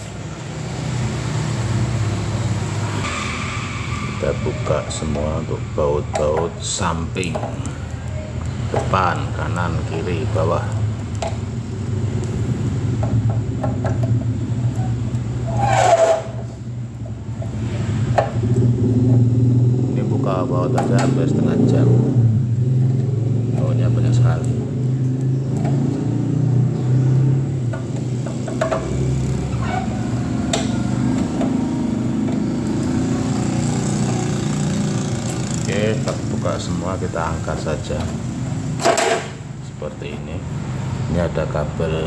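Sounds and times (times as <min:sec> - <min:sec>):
low motor drone: 0:00.6 - 0:38.8
scraping squeak: 0:14.7 - 0:16.6, 0:29.4 - 0:31.6.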